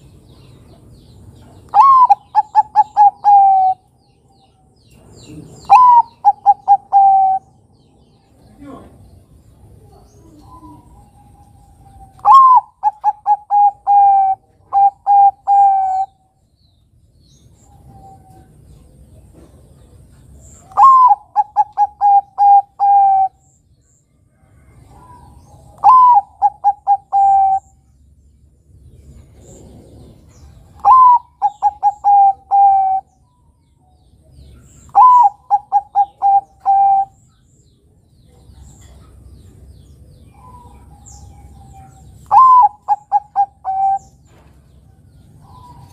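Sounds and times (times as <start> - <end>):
dove cooing: 1.7 - 3.9, 5.2 - 7.6, 9.8 - 16.2, 20.6 - 23.4, 24.6 - 27.8, 29.4 - 33.2, 34.6 - 37.2, 40.3 - 44.4.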